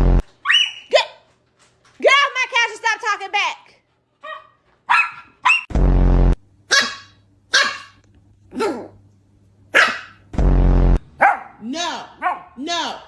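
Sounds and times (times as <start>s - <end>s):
dog barking: 4.2s - 5.7s, 6.7s - 8.0s, 8.6s - 8.9s, 9.7s - 10.2s, 11.2s - 13.0s.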